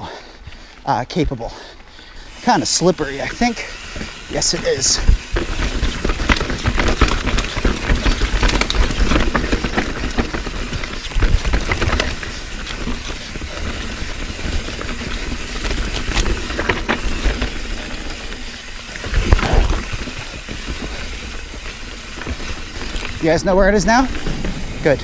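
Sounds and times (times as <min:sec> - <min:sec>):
bike tyre noise: 0:00.0 - 0:25.0
bike clattering over bumps: 0:02.3 - 0:25.0.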